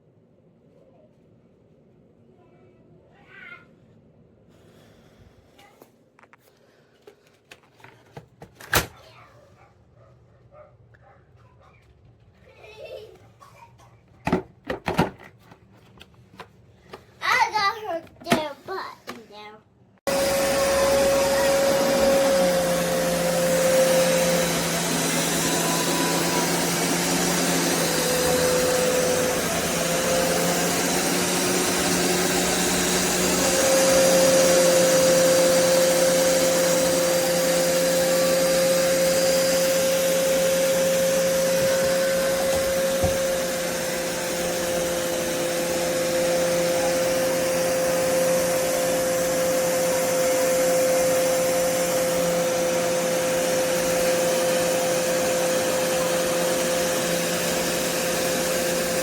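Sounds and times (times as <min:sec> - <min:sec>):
carpet shampooer motor whine: 0:20.0 - 0:59.0.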